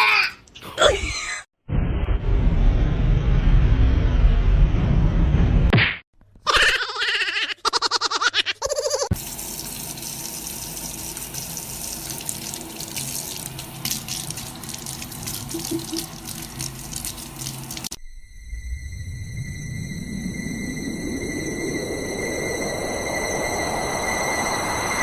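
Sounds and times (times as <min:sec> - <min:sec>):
water running: 0:09.1 - 0:18.0.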